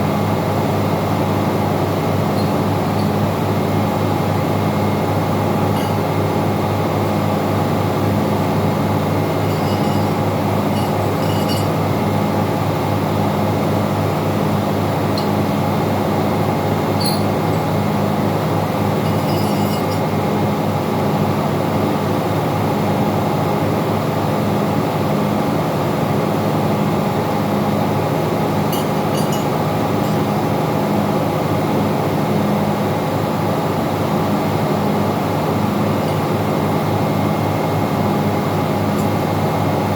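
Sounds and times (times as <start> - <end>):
engine-room machinery droning: 0.0 - 39.9
metallic clinks of tools: 2.4 - 3.2, 5.7 - 6.2, 9.4 - 11.8, 17.0 - 17.8, 19.0 - 20.1, 28.7 - 30.3.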